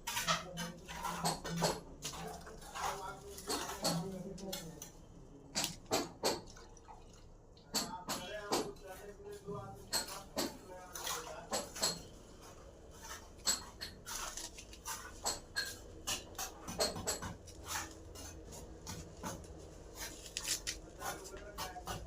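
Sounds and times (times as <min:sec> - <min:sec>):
pipe fittings and tools clinking: 0:09.8 - 0:12.1, 0:13.0 - 0:18.3.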